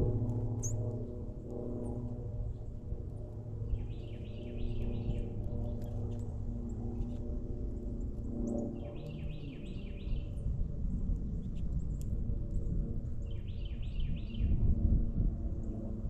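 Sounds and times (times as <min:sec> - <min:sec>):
low outdoor rumble: 0:00.0 - 0:09.0.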